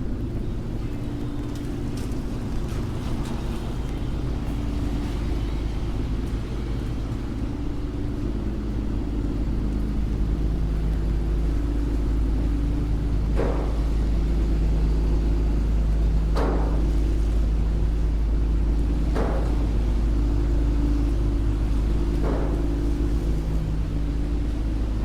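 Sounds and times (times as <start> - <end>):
engine hum: 0.0 - 25.0
street traffic rumble: 0.0 - 25.0.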